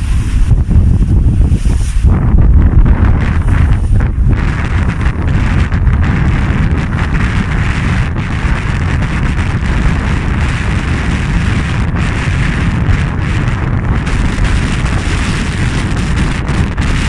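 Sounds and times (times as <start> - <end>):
water rushing along hull: 0.0 - 17.0
wind buffeting microphone: 0.0 - 17.0.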